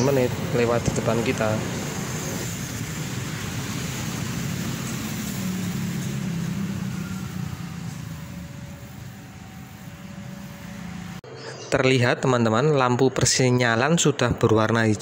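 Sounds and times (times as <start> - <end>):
train running over rails: 0.0 - 11.2.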